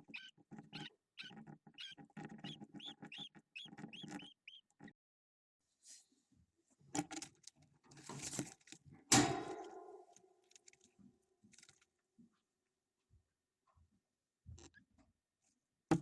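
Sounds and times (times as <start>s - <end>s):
scratching and rustling: 7.1s - 10.9s
sharp hollow knock: 9.1s - 10.1s.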